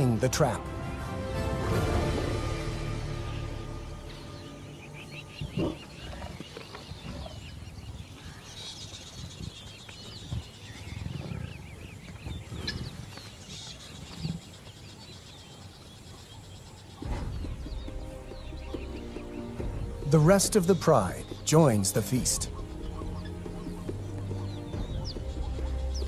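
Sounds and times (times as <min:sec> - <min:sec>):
birds chirping: 0:00.0 - 0:26.0
lions growling: 0:05.4 - 0:07.5.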